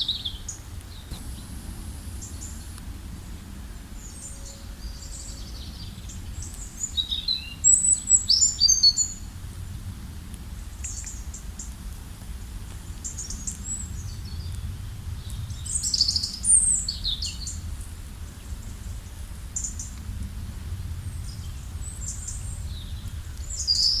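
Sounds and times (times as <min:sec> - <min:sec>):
songbirds chirping: 0:00.0 - 0:09.3
low background rumble: 0:00.4 - 0:07.2.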